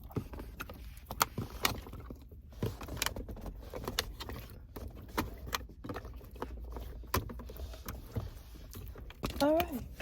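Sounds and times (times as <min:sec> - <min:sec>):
clicks and taps inside a car: 0:00.0 - 0:10.0.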